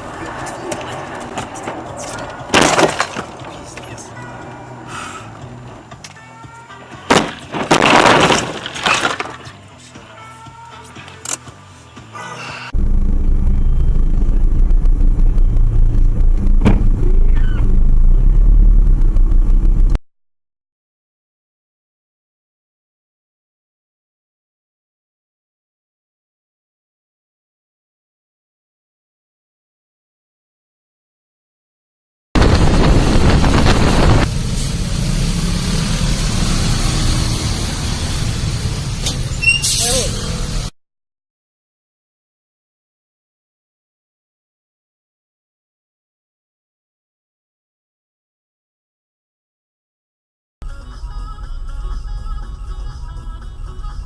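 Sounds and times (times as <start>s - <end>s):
vehicle engine rumble: 0.0s - 6.3s, 11.6s - 20.0s, 32.4s - 40.7s
road noise: 0.0s - 7.6s, 10.8s - 20.0s, 32.4s - 40.8s.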